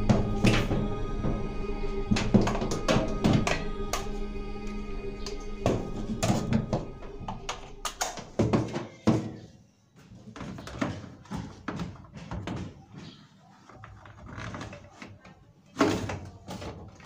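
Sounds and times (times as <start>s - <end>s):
objects knocking and clattering: 0.0s - 1.4s, 2.1s - 4.1s, 5.6s - 9.5s.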